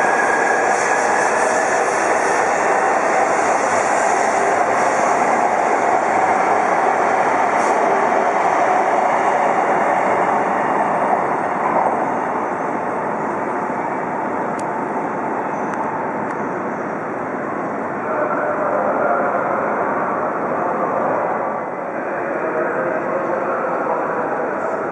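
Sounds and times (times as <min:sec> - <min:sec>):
train rushing past: 0:00.0 - 0:24.9.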